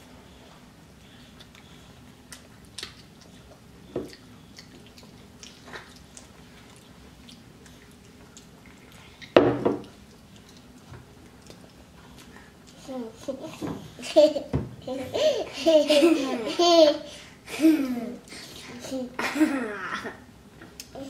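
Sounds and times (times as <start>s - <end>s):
children chewing: 0.2s - 14.2s.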